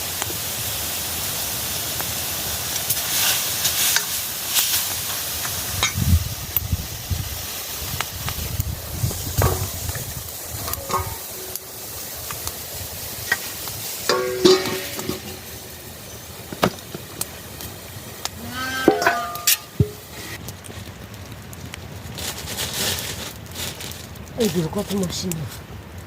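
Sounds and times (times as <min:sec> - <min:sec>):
food sizzling in a pan: 0:00.0 - 0:20.4
utensil stirring in pan: 0:02.7 - 0:05.7, 0:07.3 - 0:15.7.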